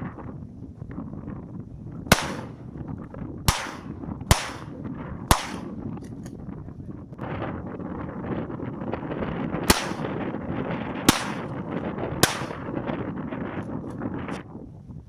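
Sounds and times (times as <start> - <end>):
wind noise on microphone: 0.0 - 15.0
shotgun shots: 2.1 - 2.6, 3.5 - 5.8, 9.7 - 10.2, 11.1 - 11.6, 12.2 - 12.7.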